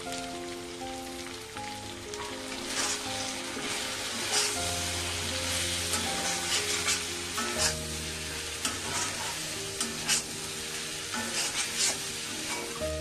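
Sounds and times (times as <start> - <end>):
food sizzling in oil: 0.0 - 13.0
spoon scraping a pan: 2.6 - 4.6, 5.5 - 7.8, 8.6 - 10.4, 11.1 - 12.8.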